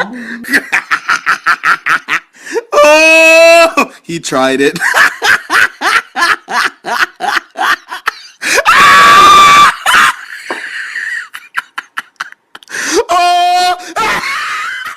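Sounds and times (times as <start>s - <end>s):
person laughing: 9.4s - 13.1s.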